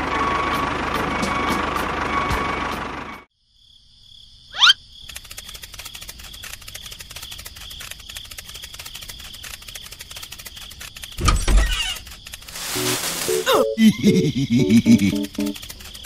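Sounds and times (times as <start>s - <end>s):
crickets chirping: 3.3s - 16.0s.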